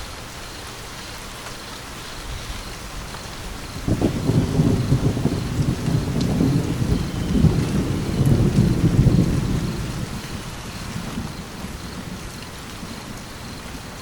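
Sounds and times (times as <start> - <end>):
steady rain falling: 0.0 - 14.0
thunder rumbling: 2.9 - 14.0.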